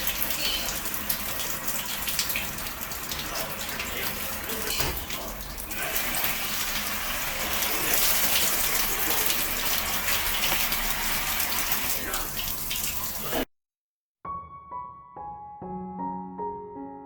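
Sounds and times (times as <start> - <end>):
tap water running and splashing: 0.0 - 13.5
soft piano music: 14.2 - 17.0.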